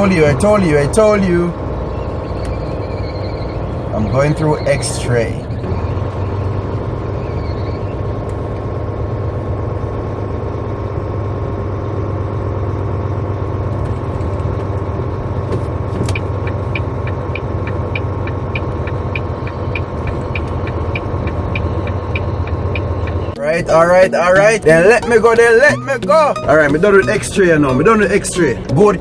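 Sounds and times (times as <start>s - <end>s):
diesel engine idling: 0.0s - 29.0s
regular ticking: 14.8s - 29.0s.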